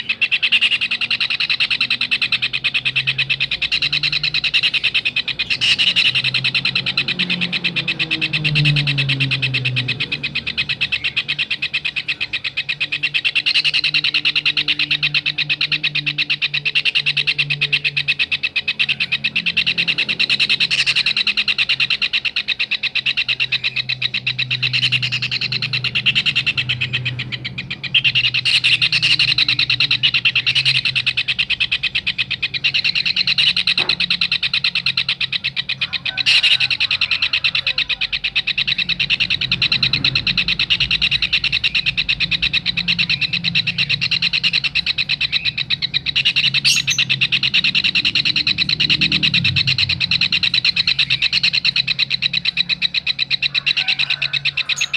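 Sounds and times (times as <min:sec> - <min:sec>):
bird high-pitched trill: 0:00.0 - 0:54.9
low hum: 0:37.8 - 0:53.1.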